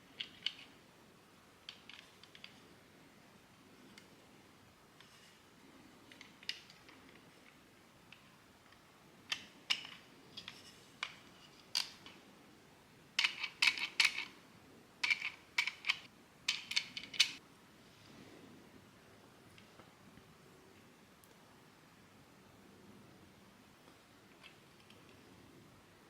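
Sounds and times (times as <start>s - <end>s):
plastic parts clicking and snapping: 0.2s - 0.7s, 1.7s - 2.6s, 6.1s - 12.2s, 13.2s - 14.3s, 15.0s - 17.4s.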